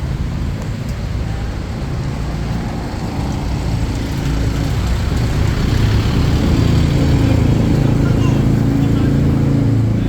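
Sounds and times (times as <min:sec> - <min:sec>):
passing vehicle engines: 0:00.0 - 0:10.0.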